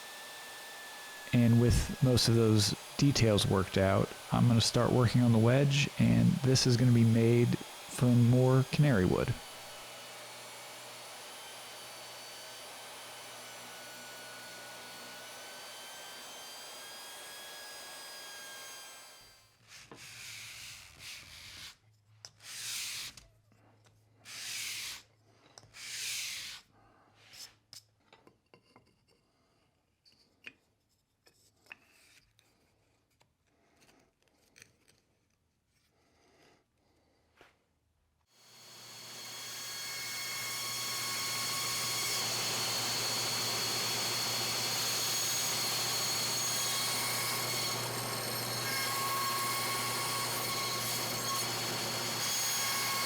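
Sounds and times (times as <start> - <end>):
machine running: 0.1 - 9.7, 38.6 - 49.1
hand tool rasping on wood: 40.3 - 53.0.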